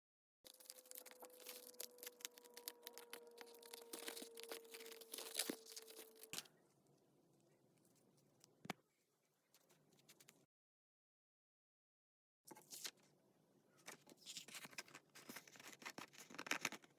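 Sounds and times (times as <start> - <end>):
paper crackling and tearing: 0.5 - 6.5, 14.0 - 16.9.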